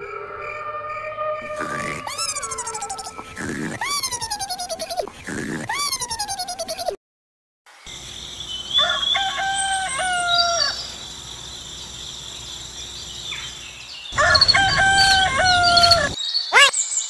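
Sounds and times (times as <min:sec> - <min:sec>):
faint bird chirping: 0:01.4 - 0:07.0
rooster crowing: 0:08.7 - 0:10.9, 0:14.2 - 0:16.7.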